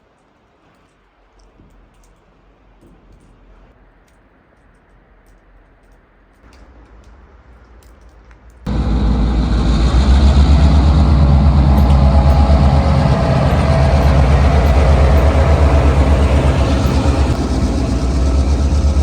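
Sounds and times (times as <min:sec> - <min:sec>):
vehicle engine running: 0:08.7 - 0:19.0.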